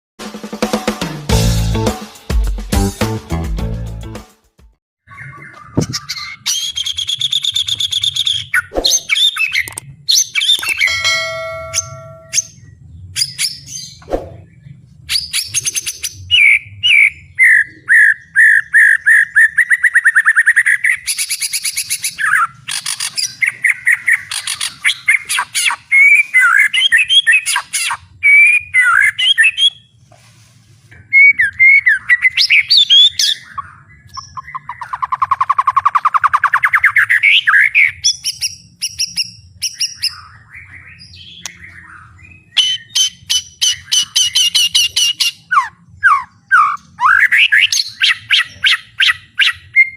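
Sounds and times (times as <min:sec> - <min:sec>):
bird singing whistled phrases: 0:15.1 - 0:29.9, 0:31.1 - 0:49.9.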